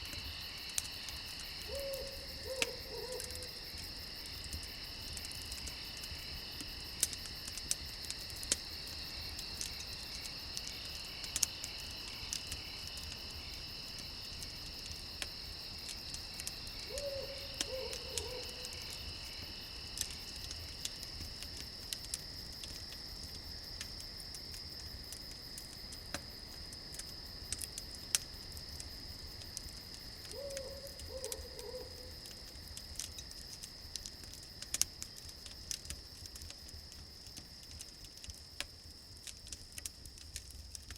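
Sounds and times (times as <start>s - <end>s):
campfire crackling and popping: 0.0s - 40.9s
crickets chirring: 0.0s - 40.9s
owl hooting: 1.7s - 3.5s, 16.9s - 18.6s, 30.3s - 32.0s.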